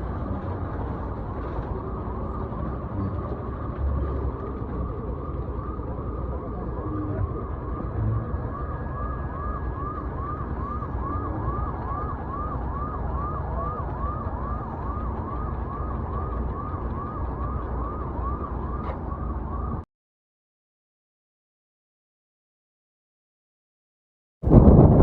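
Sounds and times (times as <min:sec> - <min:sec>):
motorbike road and wind noise: 0:00.0 - 0:19.8, 0:24.5 - 0:25.0
siren yelping: 0:01.7 - 0:19.8.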